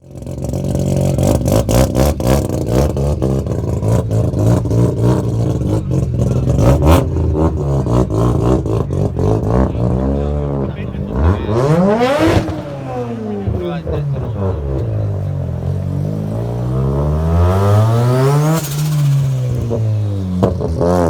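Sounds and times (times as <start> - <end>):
car engine revving: 0.0 - 21.0
exhaust pops and bangs: 10.7 - 15.9.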